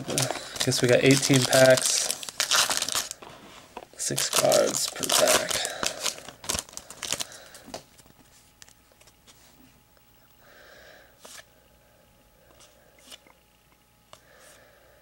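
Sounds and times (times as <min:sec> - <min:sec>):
card wrapper crinkling: 0:00.0 - 0:03.3, 0:04.0 - 0:09.2
soft rustle of cards: 0:00.0 - 0:09.9, 0:11.2 - 0:11.5, 0:12.4 - 0:13.4.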